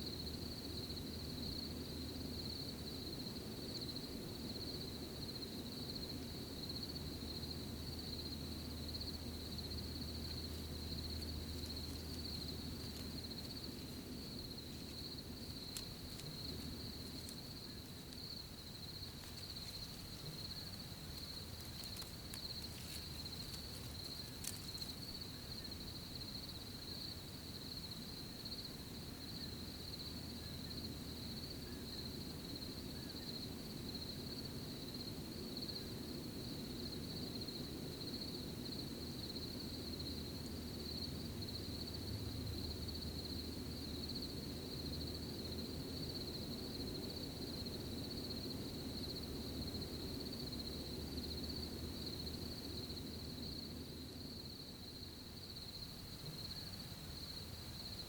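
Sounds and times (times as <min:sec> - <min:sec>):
crickets chirping: 0:00.0 - 0:58.0
faint ticks or rustles: 0:08.9 - 0:26.6.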